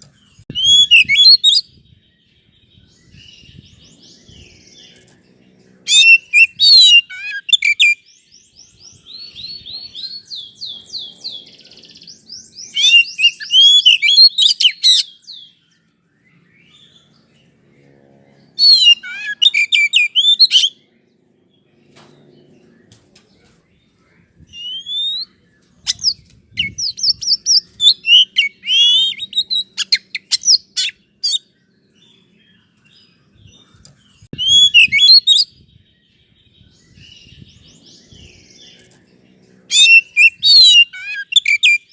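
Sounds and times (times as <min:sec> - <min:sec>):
bird whistles trills and chattering: 0:00.5 - 0:01.9, 0:05.9 - 0:08.3, 0:08.9 - 0:15.5, 0:18.6 - 0:20.8, 0:24.5 - 0:31.4, 0:34.3 - 0:35.6, 0:39.7 - 0:41.9.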